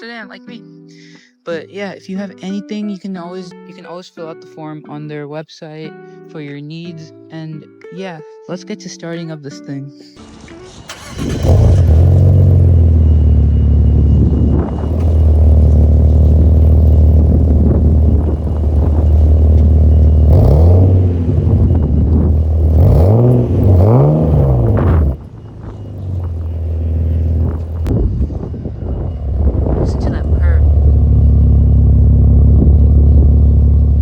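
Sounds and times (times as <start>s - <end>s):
car engine idling: 10.2s - 34.0s
engine revving: 10.2s - 34.0s.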